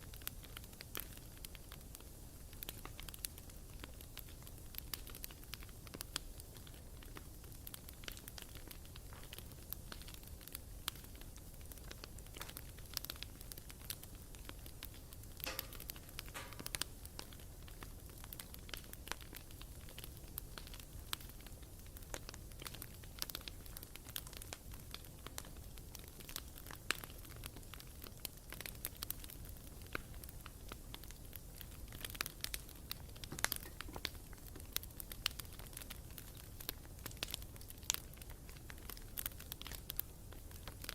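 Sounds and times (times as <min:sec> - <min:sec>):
low rumble of flames: 0:00.0 - 0:40.9
wood crackling and popping: 0:00.0 - 0:40.9
fire hissing sputter: 0:15.4 - 0:17.0.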